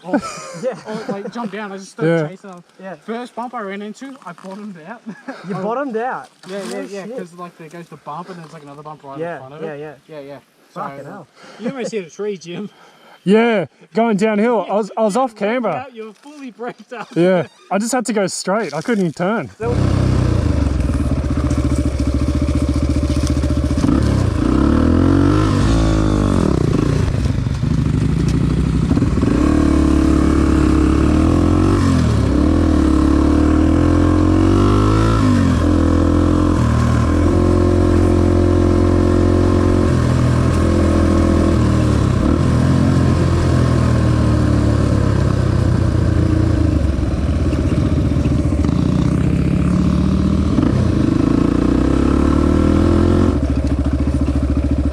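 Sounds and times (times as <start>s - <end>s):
dirt bike engine revving: 19.6s - 54.9s.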